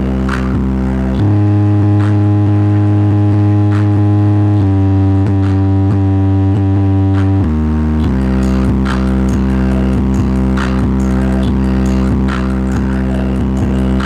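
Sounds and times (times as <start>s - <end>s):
bass-heavy music: 0.0s - 14.0s.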